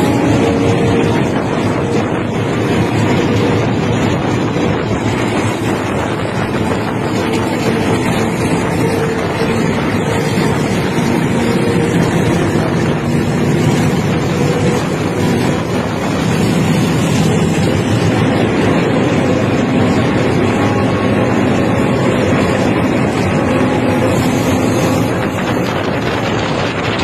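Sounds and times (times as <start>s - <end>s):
train carriages rumbling: 0.0s - 27.0s
wind on microphone: 0.0s - 27.0s.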